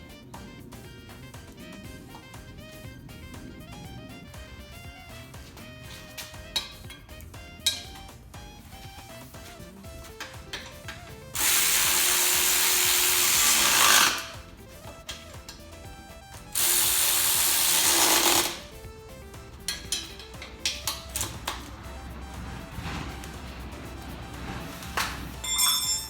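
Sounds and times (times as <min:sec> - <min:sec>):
background music: 0:00.0 - 0:26.0
power tool motor winding down: 0:11.3 - 0:14.6, 0:16.5 - 0:18.8.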